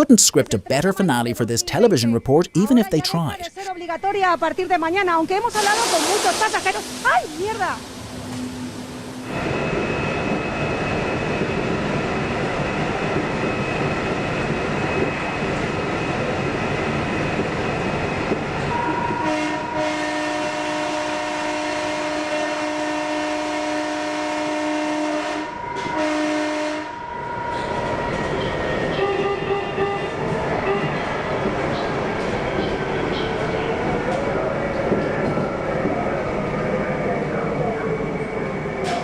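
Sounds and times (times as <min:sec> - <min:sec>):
train wheels on track: 0:05.1 - 0:22.2, 0:27.0 - 0:39.0
train horn chord: 0:18.7 - 0:27.6.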